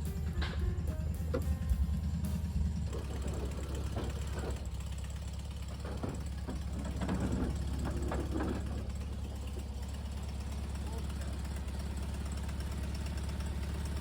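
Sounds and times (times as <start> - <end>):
scattered clicks and knocks: 0.0 - 9.7
car engine idling: 0.0 - 14.0.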